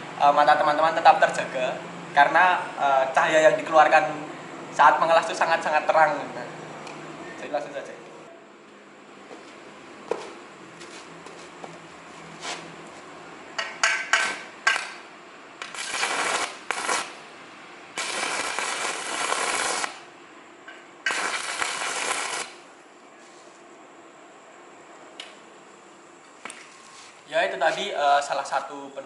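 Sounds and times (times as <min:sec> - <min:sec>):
welding arc crackling hiss: 0:14.1 - 0:20.2, 0:21.0 - 0:22.7.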